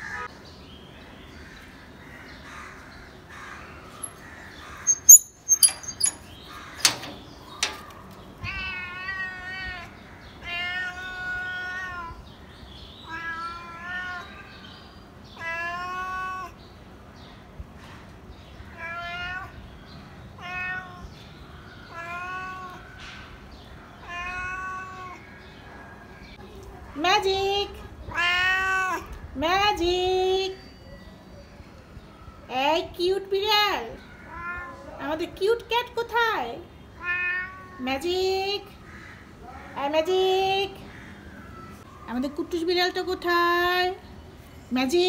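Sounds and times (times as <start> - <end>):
sharp clicks or knocks: 4.9 - 8.0
cat meowing: 8.4 - 12.2, 13.0 - 14.5, 15.4 - 16.6, 20.4 - 21.1, 21.9 - 22.9, 24.0 - 25.2, 28.1 - 29.2, 34.2 - 35.0, 37.0 - 37.9.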